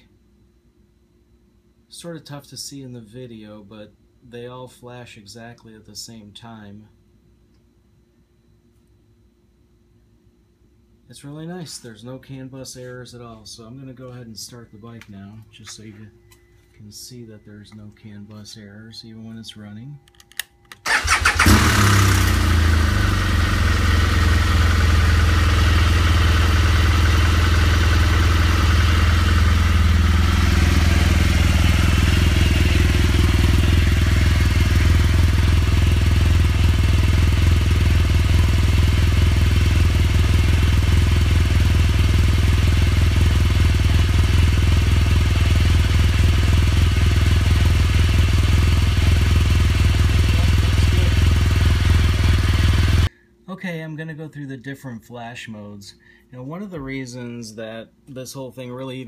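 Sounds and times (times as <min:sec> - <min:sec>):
motorcycle electric starter: 0:20.7 - 0:53.1
motorcycle engine idling: 0:20.9 - 0:53.1.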